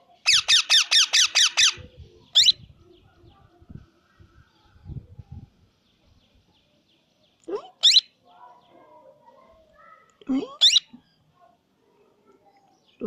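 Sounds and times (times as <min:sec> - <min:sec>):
parakeet shrill sliding calls: 0:00.3 - 0:01.8.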